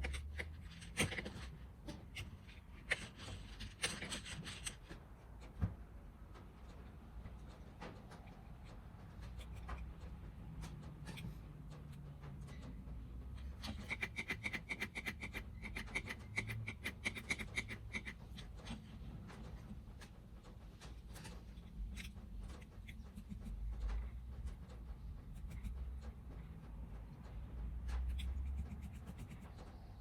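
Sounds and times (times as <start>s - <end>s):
rubbing and scratching: 0.0s - 30.0s.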